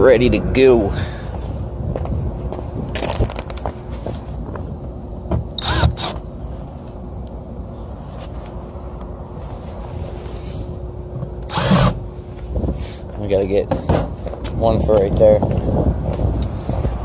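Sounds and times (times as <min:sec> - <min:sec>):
hvac unit humming: 0:00.0 - 0:17.0
cordless drill spinning: 0:05.6 - 0:06.2, 0:11.4 - 0:12.0.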